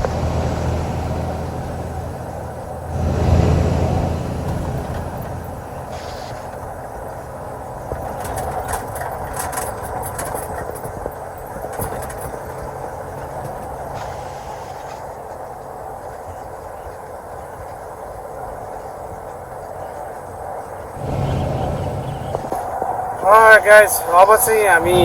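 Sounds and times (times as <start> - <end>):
light rattles: 0.0 - 15.0
diesel engine drone: 0.0 - 16.4, 20.2 - 25.0
road noise: 0.0 - 25.0.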